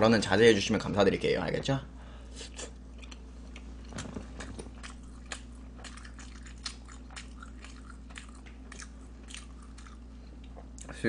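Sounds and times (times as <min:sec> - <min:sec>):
person chewing food: 0:02.4 - 0:10.9.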